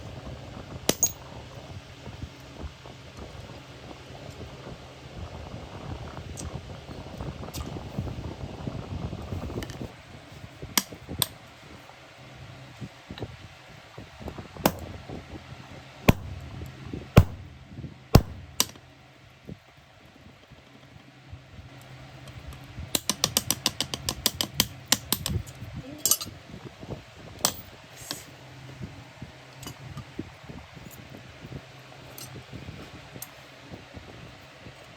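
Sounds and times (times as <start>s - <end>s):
low hum: 16.1s - 17.6s, 18.2s - 18.6s
sharp clicks: 18.2s - 18.7s.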